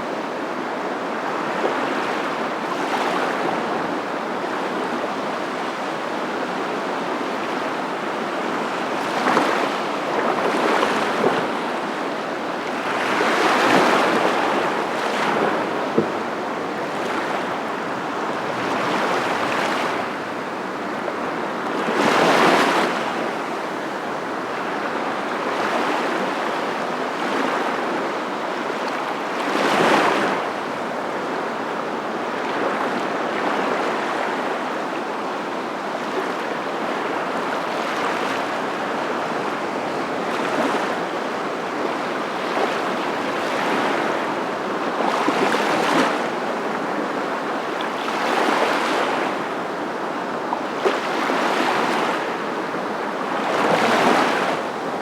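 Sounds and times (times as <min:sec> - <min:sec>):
rushing water: 0:00.2 - 0:55.0.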